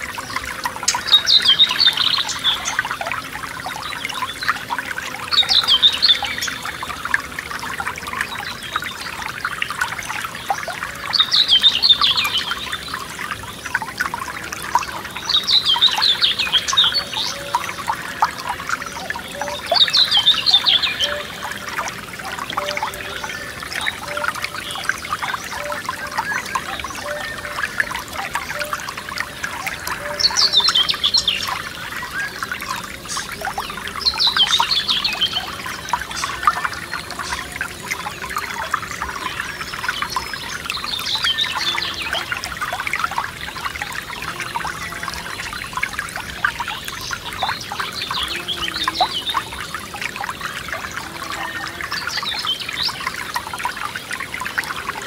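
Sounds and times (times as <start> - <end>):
stream trickling and splashing: 0.0 - 55.0
songbird singing falling phrases: 0.2 - 6.8, 14.8 - 17.8, 18.9 - 42.5.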